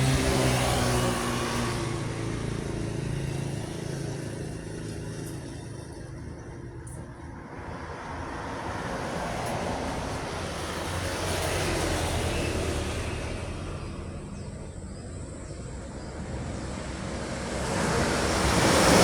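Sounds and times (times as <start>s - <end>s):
truck passing by: 0.0s - 19.0s.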